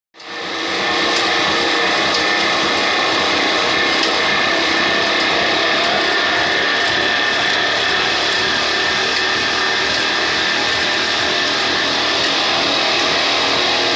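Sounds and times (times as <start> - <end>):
diesel engine running with whine: 0.2 - 13.9.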